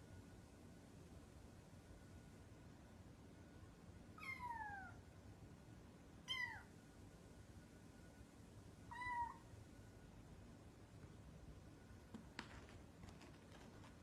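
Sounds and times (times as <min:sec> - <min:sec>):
cat meowing: 0:04.2 - 0:05.0, 0:08.9 - 0:09.4.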